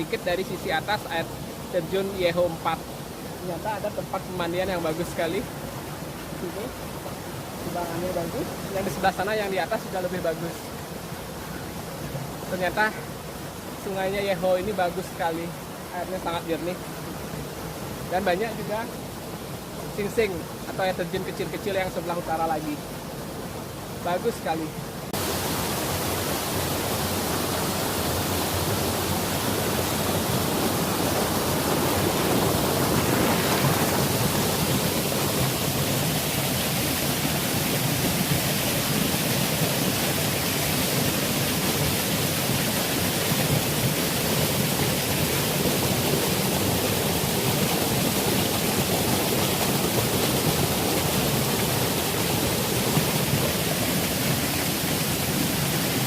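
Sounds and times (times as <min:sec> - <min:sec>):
river rushing over waterfalls: 0:00.0 - 0:56.0.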